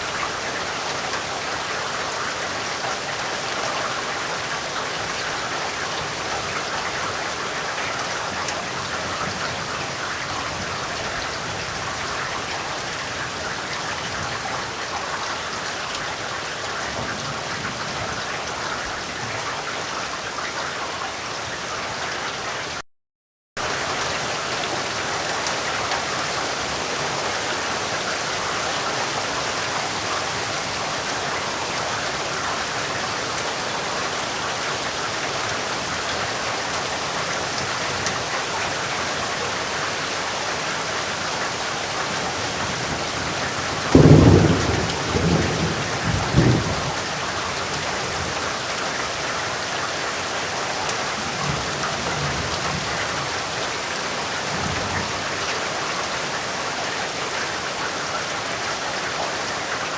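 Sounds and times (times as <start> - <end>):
steady rain falling: 0.0 - 22.8, 23.6 - 59.9
distant thunder rumble: 42.6 - 47.4
thunder clap: 43.4 - 47.2.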